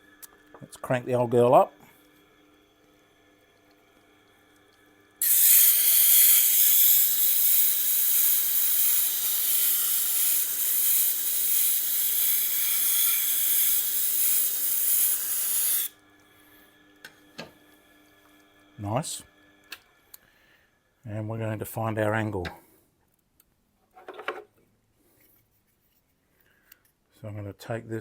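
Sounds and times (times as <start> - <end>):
loud steady hiss: 5.2 - 16.0
sharpener motor humming: 5.2 - 16.0.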